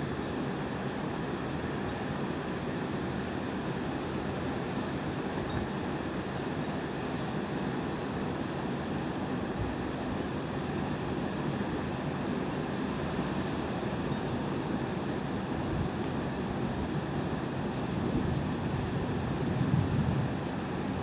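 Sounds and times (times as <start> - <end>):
cricket chirping: 0.1 - 7.3, 8.2 - 21.0.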